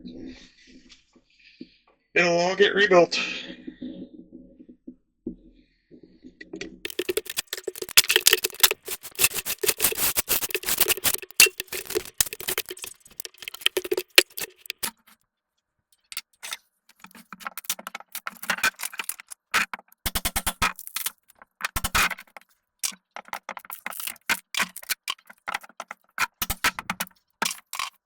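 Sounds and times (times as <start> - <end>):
dry wood cracking and breaking: 6.8 - 15.0.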